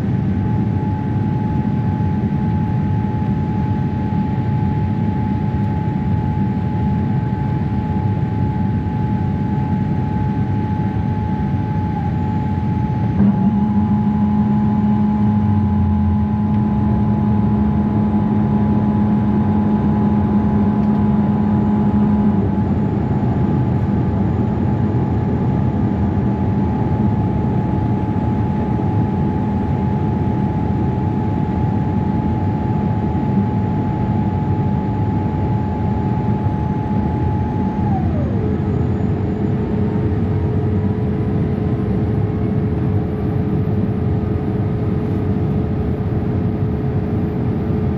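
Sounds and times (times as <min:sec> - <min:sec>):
aircraft whine: 0:00.0 - 0:47.9
airliner cabin roar: 0:00.0 - 0:47.9
low hum: 0:09.0 - 0:43.4.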